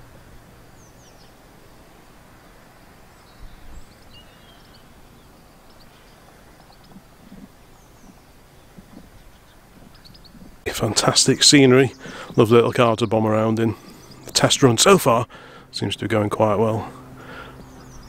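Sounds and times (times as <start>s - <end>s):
small birds chirping: 0.0s - 18.0s
steady outdoor hiss: 0.0s - 18.0s.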